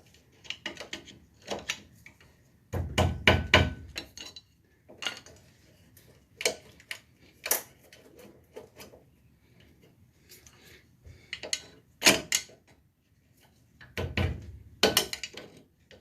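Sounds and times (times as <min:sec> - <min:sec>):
metal tools clanking on metal: 0:03.9 - 0:05.3.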